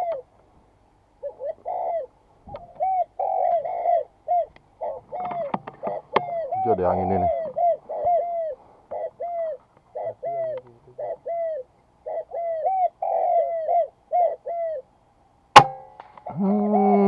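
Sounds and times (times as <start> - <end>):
short arching bird calls: 1.2 - 14.9
air rifle shot: 15.6 - 16.1.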